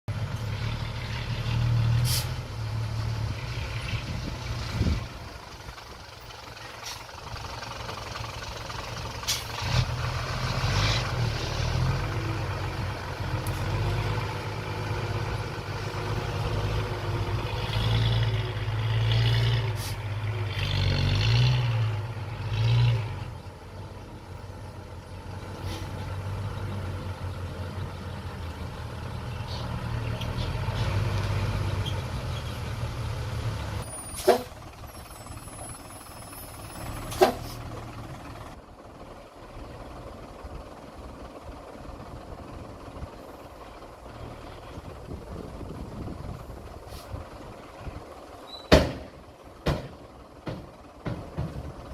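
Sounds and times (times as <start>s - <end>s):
bulldozer engine running: 0.1s - 51.9s.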